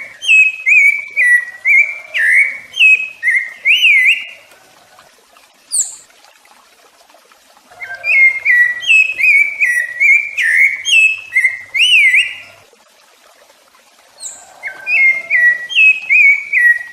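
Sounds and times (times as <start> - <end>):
thrush singing whistled notes: 0.0 - 4.5, 5.7 - 6.1, 7.8 - 12.6, 14.2 - 16.9.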